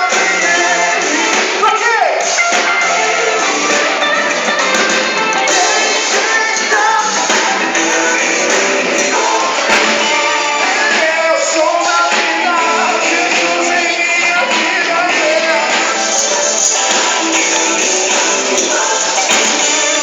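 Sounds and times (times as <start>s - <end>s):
lead vocal singing: 0.0s - 4.1s, 5.4s - 20.0s
live pop-rock band: 0.0s - 20.0s.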